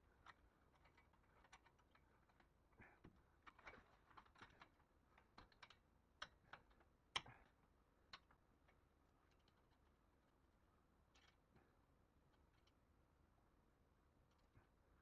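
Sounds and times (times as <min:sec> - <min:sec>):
faint clicks and light taps: 0:00.1 - 0:10.0.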